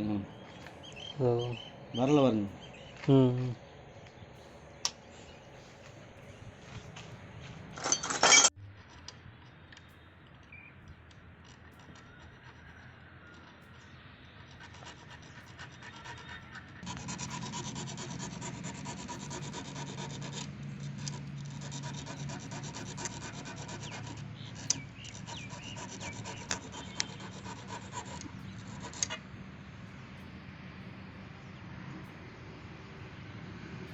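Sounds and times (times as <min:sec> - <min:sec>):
rapid scraping on metal: 0:04.4 - 0:10.5, 0:11.4 - 0:29.4.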